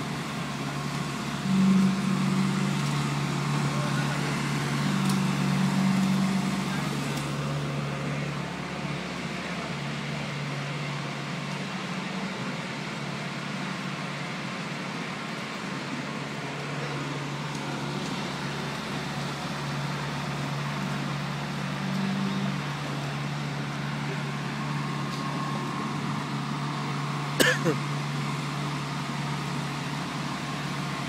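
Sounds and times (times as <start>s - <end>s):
paving machine engine humming: 0.0s - 31.0s.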